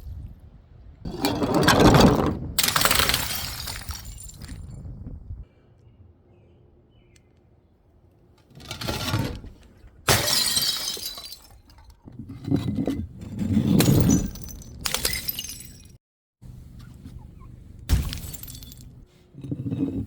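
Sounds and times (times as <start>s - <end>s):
glass bottles smashing: 2.6s - 4.7s, 10.1s - 11.9s, 13.7s - 16.0s, 17.9s - 19.0s
glass shards clattering: 17.9s - 18.9s.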